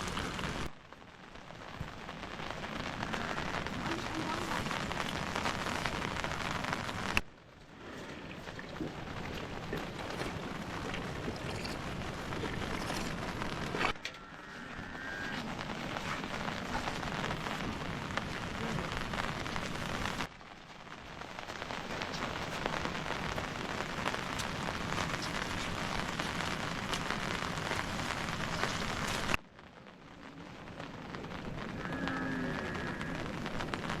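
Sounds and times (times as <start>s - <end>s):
steady rain hiss: 0.0s - 34.0s.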